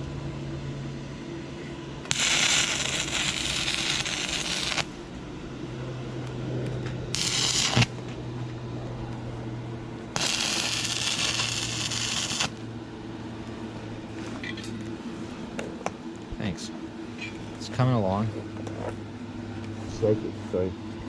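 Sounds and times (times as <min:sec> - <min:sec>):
low hum: 0:00.0 - 0:21.0
welding arc crackling hiss: 0:02.1 - 0:05.0, 0:07.1 - 0:08.0, 0:10.1 - 0:12.6.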